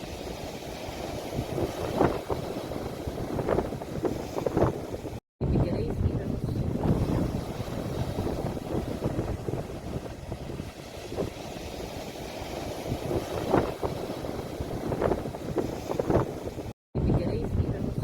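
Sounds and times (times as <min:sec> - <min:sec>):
sea waves washing in: 0:00.0 - 0:16.8
wind buffeting microphone: 0:00.0 - 0:18.0.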